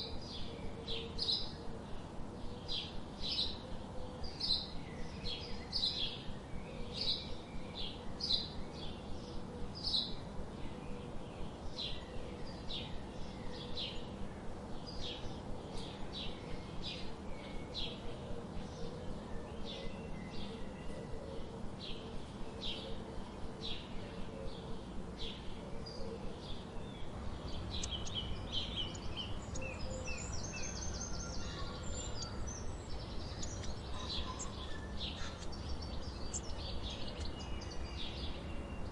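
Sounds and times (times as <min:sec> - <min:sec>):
steady background hiss: 0:00.0 - 0:38.9
small bird chirping: 0:27.5 - 0:38.9.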